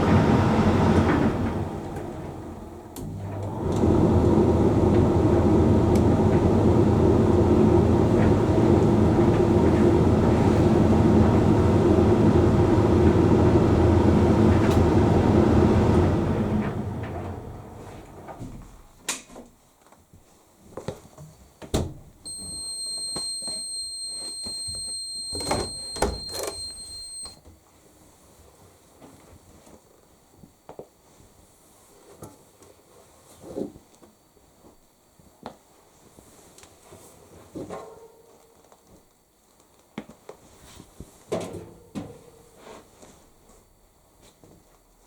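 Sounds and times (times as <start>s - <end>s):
tumble dryer running: 0.0s - 18.4s, 22.3s - 27.4s
high electronic beep: 22.3s - 27.4s.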